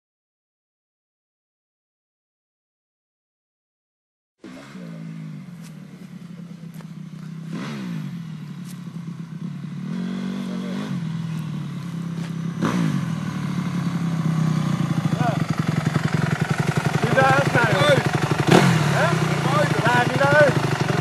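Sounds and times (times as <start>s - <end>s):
dirt bike engine revving: 4.4s - 21.0s.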